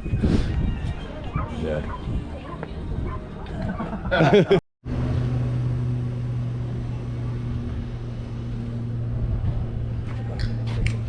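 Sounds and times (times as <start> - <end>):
engine running steadily: 4.8 - 11.0.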